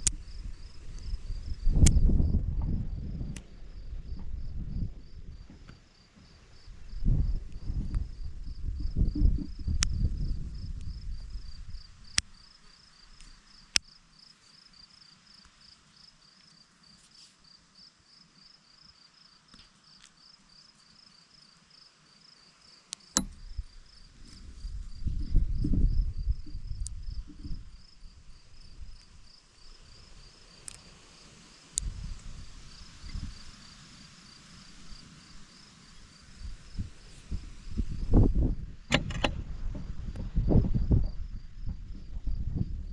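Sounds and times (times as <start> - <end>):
low rumbling handling noise: 0.0 - 5.8, 23.2 - 29.0, 37.8 - 42.9
insect chirping: 0.0 - 42.9
sharp clicks: 22.9 - 23.6, 38.9 - 39.4.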